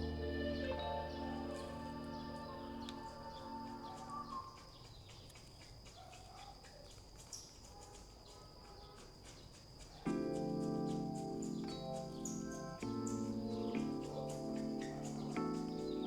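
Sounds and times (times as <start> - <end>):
background music: 0.0 - 4.4, 10.1 - 16.0
bird chirps: 0.0 - 16.0
high insect drone: 0.0 - 16.0
light ticks: 2.9 - 16.0.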